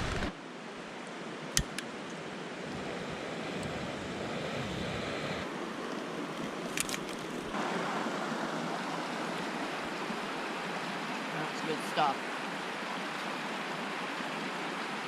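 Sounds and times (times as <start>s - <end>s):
sharp clicks: 1.6s - 1.9s.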